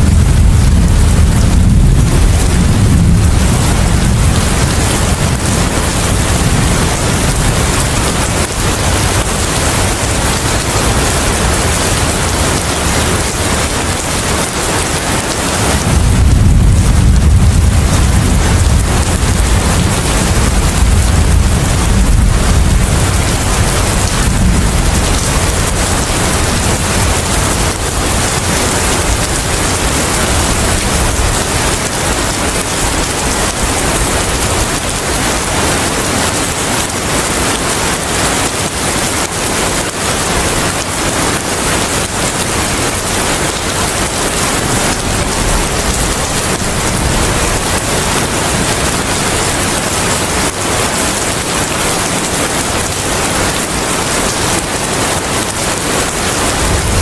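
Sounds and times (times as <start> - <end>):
low rumble: 0.0 - 10.6, 15.2 - 31.4
heavy rain: 0.0 - 57.0.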